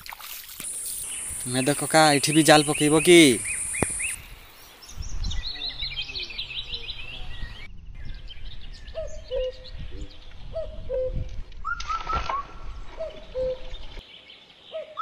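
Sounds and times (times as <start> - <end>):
cast net splashing on water: 0.0 - 1.0
higher bird chirps: 0.6 - 7.7.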